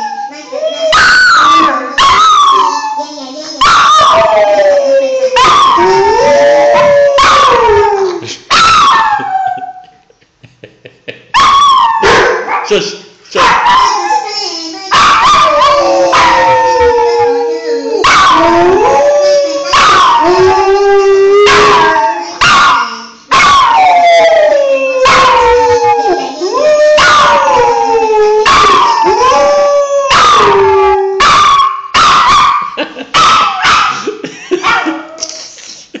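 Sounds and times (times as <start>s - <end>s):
dogs howling: 3.6s - 9.8s, 14.9s - 32.6s
dogs yelping: 14.9s - 34.0s.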